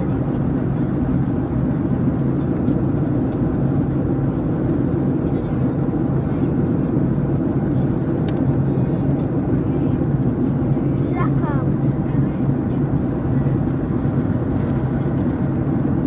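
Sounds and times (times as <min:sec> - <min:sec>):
jet airliner cabin drone: 0:00.0 - 0:16.0.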